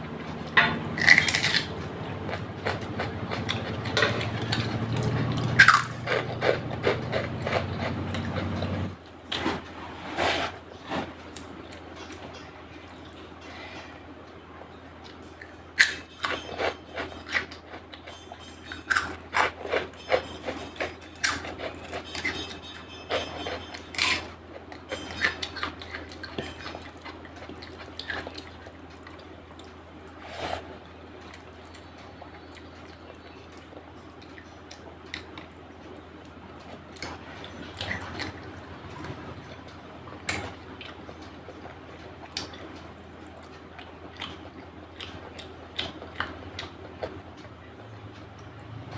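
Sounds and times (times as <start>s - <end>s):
chewing food close up: 0.9s - 9.0s.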